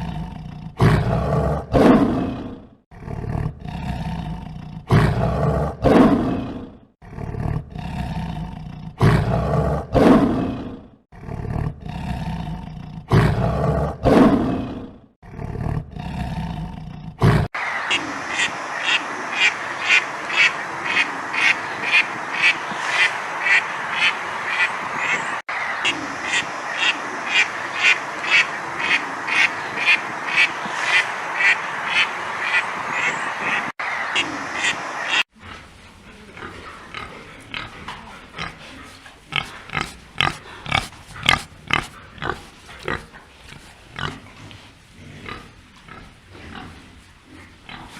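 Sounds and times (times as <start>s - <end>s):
lion roaring: 0.0s - 17.5s
ducks quacking: 17.6s - 35.2s.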